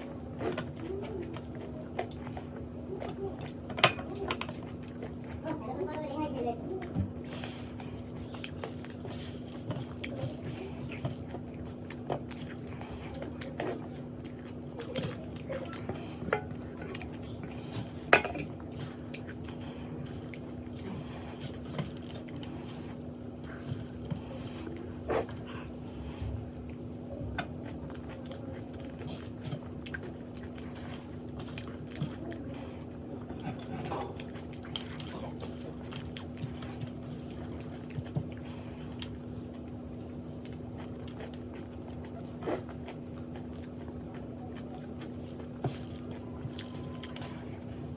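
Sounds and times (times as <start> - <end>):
chewing: 0.0 - 47.9
steady low hum: 0.0 - 47.9
utensils clinking on a plate: 17.8 - 18.5.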